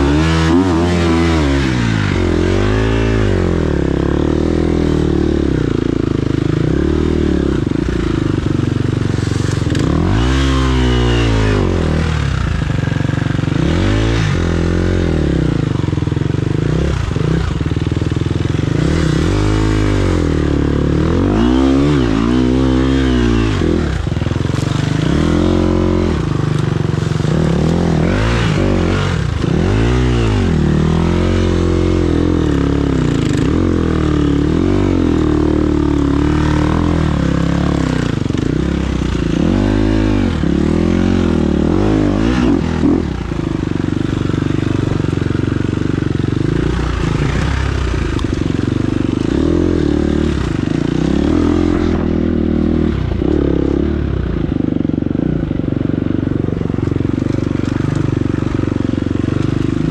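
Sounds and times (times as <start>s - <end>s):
motorcycle engine revving: 0.0s - 59.9s
engine clatter: 23.3s - 59.9s.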